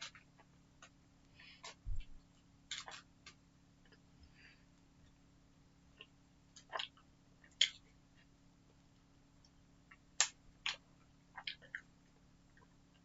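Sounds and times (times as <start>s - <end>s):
faint steady hum: 0.0s - 13.0s
mouth clicks and smacks chewing: 6.0s - 7.8s, 11.4s - 11.9s.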